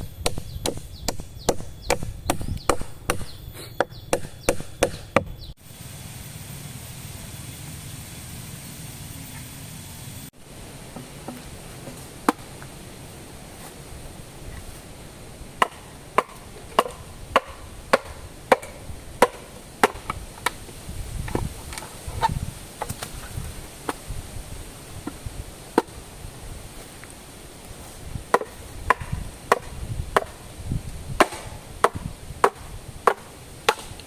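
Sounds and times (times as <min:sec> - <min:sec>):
blade chopping wood: 0:00.1 - 0:05.4, 0:15.6 - 0:20.6, 0:28.3 - 0:30.4, 0:31.2 - 0:34.0.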